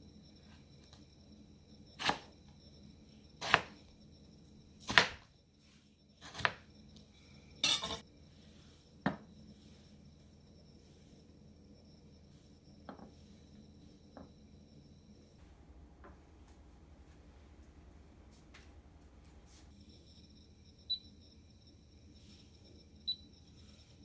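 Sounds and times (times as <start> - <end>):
kitchen utensils knocking: 7.6 - 8.0.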